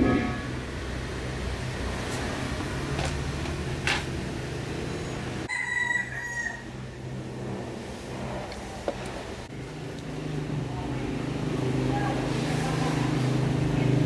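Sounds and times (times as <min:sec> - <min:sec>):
steady low hum: 0:00.0 - 0:01.8
rooster crowing: 0:05.5 - 0:06.8.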